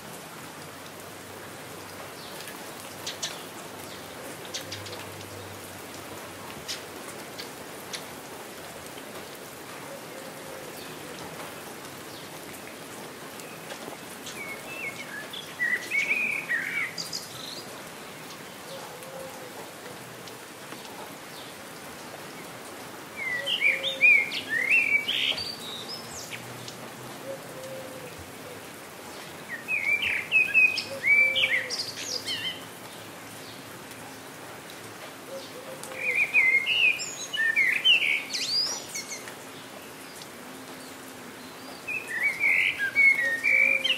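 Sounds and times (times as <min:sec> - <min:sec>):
steady rain: 0:00.0 - 0:43.9
songbird chirping: 0:10.1 - 0:19.2, 0:23.2 - 0:34.0, 0:35.3 - 0:43.9.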